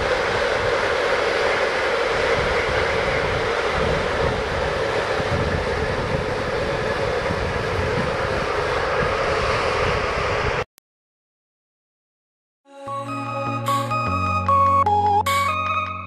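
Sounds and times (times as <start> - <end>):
freight train passing: 0.0 - 10.6, 12.8 - 16.0
wind on microphone: 0.0 - 10.6.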